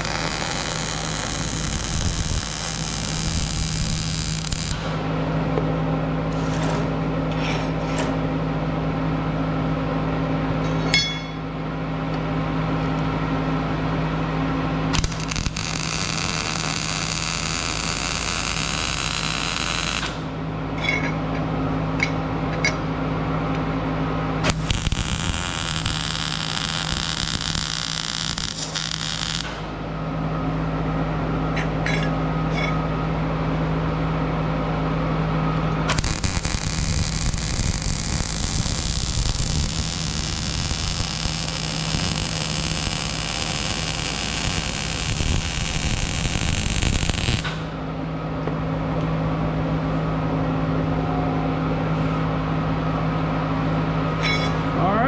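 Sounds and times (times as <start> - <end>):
arc welding crackle: 0.0 - 5.1, 14.9 - 20.4, 24.4 - 29.8, 35.8 - 47.8
electrical hum: 0.0 - 55.0.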